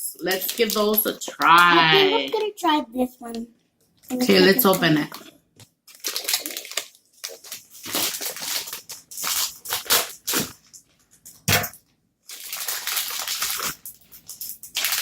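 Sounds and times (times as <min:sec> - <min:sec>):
plastic candy bag crinkling: 0:00.2 - 0:01.7, 0:04.2 - 0:11.6, 0:12.2 - 0:15.0.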